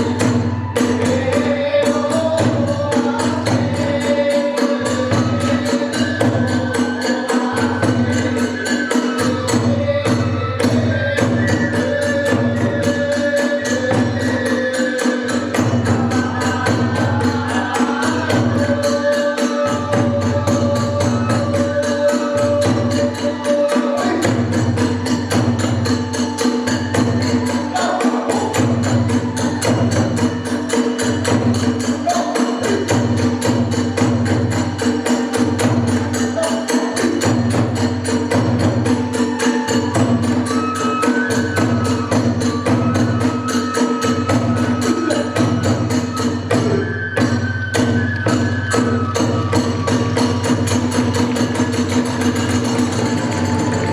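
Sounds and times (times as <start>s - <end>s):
transverse flute melody: 0.0s - 14.4s, 38.4s - 53.9s
steady drum beat: 0.0s - 53.9s
hand cymbals clattering: 47.7s - 53.9s.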